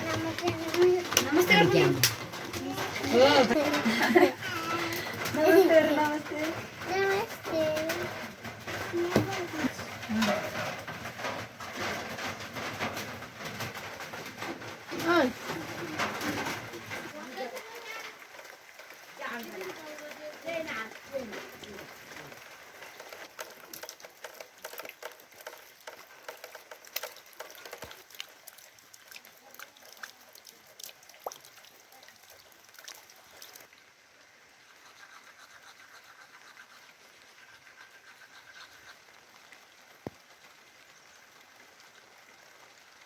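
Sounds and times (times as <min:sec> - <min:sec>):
raindrops ticking: 0:00.0 - 0:34.2, 0:37.0 - 0:43.0
rain hiss: 0:00.0 - 0:43.0.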